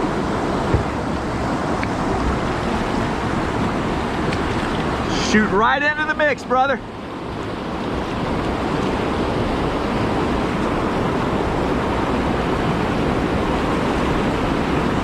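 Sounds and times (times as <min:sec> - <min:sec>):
whitewater rushing through rapid: 0:00.0 - 0:15.0.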